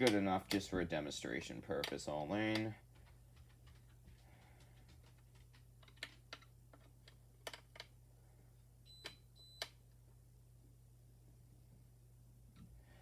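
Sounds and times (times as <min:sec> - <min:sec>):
faint clicks and taps: 0:01.4 - 0:08.0.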